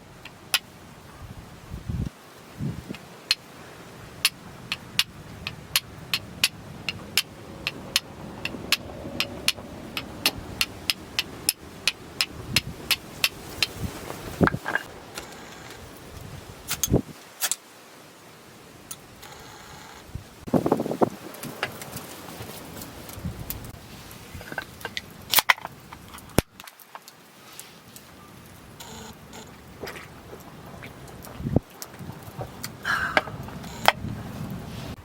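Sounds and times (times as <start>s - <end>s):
wood fire crackling and popping: 2.8s - 17.6s, 20.3s - 34.5s.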